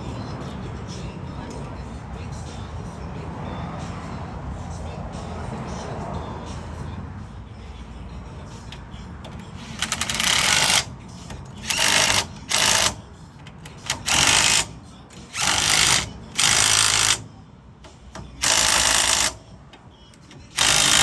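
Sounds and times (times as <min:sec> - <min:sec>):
power tool bursts: 0:09.8 - 0:10.9, 0:11.6 - 0:13.0, 0:13.8 - 0:17.2, 0:18.4 - 0:19.4, 0:20.5 - 0:21.0.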